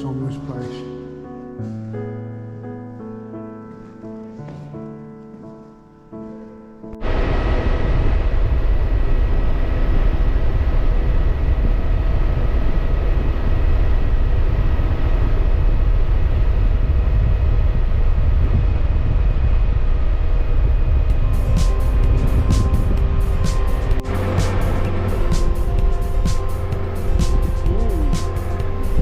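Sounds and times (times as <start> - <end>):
heavy wind rush: 7.0 - 29.0.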